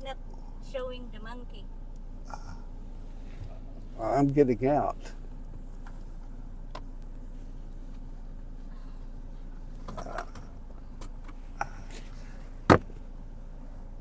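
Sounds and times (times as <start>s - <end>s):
car engine idling: 0.0s - 14.0s
car door shutting: 9.8s - 11.4s, 12.5s - 13.1s.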